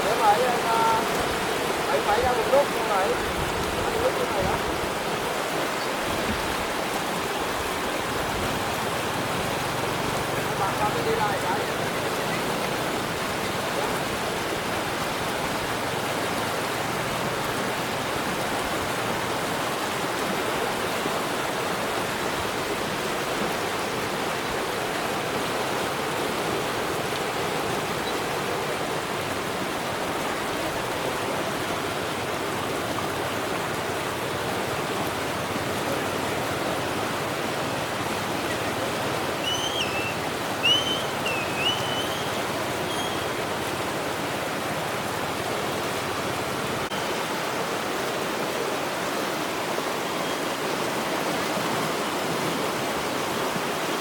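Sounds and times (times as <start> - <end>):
rushing water: 0.0 - 54.0
short high chirps: 39.4 - 43.3.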